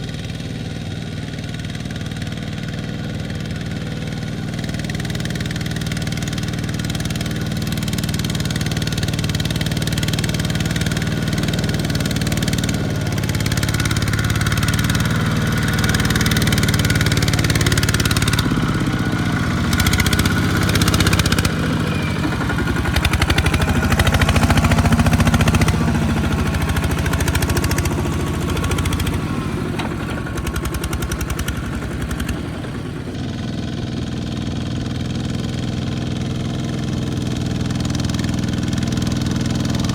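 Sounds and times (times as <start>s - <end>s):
tractor engines running: 0.0s - 39.9s.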